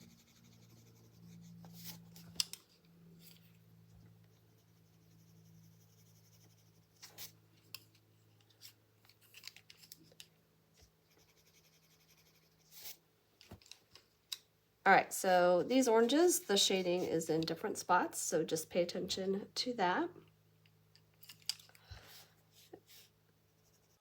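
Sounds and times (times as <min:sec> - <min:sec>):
pencil scratching on paper: 0:00.0 - 0:02.2, 0:04.3 - 0:07.4, 0:11.1 - 0:13.0, 0:22.8 - 0:24.0
faint low hum: 0:00.0 - 0:24.0.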